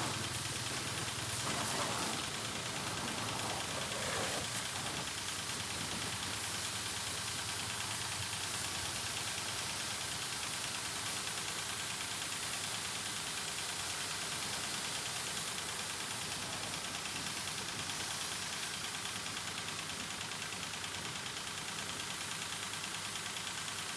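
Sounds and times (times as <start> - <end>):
low motor hum: 0.0 - 5.2
water spray jet hissing: 0.0 - 5.6.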